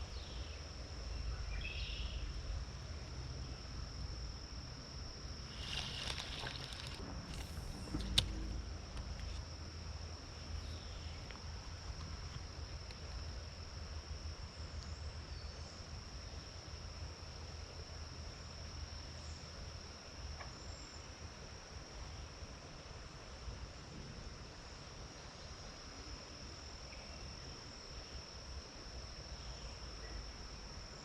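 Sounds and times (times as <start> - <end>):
high-pitched insect drone: 3.2 - 11.2
rustling noise: 5.5 - 9.5
low rumble: 5.8 - 11.0.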